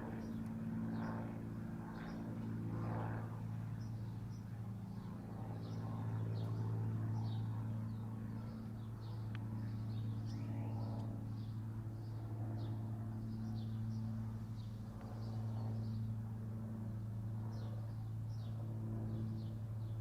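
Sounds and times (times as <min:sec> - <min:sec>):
low mechanical hum: 0:00.0 - 0:20.0
small birds chirping: 0:03.7 - 0:16.2.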